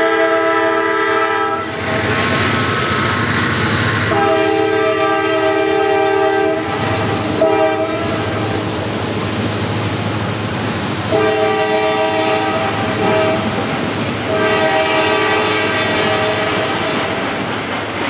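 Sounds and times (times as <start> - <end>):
locomotive air horn blasts: 0.0 - 1.9, 4.0 - 8.6, 11.1 - 13.6, 14.3 - 17.0
train wheels on rails: 0.0 - 18.0.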